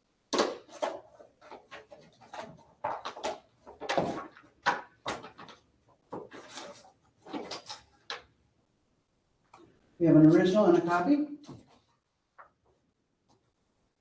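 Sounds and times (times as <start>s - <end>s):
paper rustling: 0.4s - 8.3s.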